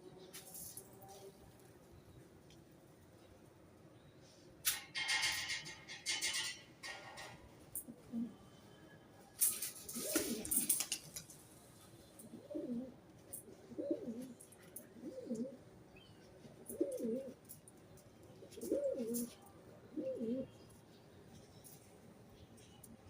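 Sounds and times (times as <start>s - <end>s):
pigeon cooing: 7.8s - 8.5s, 9.8s - 10.8s, 12.2s - 15.6s, 16.4s - 17.5s, 18.4s - 20.6s.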